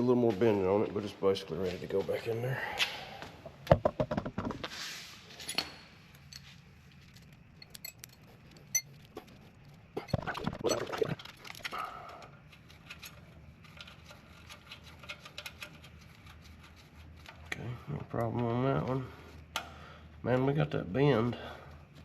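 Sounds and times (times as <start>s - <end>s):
rattling and scraping: 5.3s - 11.7s, 12.5s - 17.4s
metal brake line clinking: 5.4s - 9.0s.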